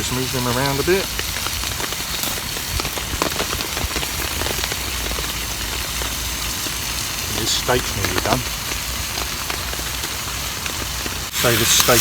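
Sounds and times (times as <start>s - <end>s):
rain on a tarp: 0.0s - 12.0s.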